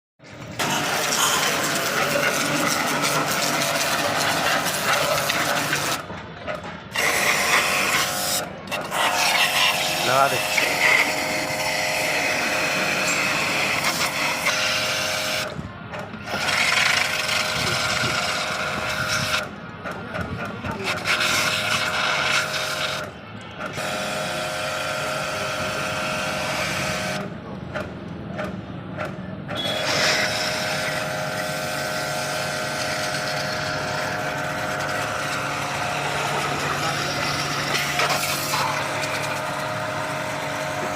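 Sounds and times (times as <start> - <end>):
pressure washer water jet hissing: 0.6 - 6.0, 6.9 - 15.5, 16.3 - 19.4, 20.8 - 23.1, 29.6 - 40.9
washer motor humming: 0.6 - 6.1, 7.0 - 15.5, 29.6 - 40.9.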